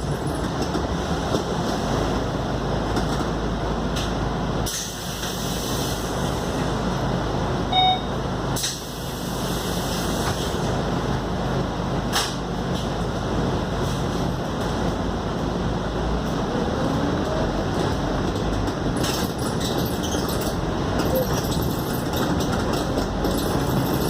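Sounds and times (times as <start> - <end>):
bus engine and road noise: 0.0 - 24.0
short electronic beep: 7.7 - 8.2.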